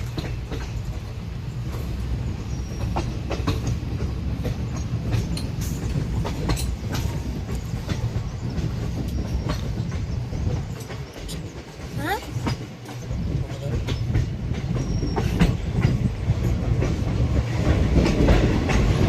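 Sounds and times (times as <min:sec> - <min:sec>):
train rumbling on track: 0:00.0 - 0:19.0
wheels clicking over rail joints: 0:00.0 - 0:19.0.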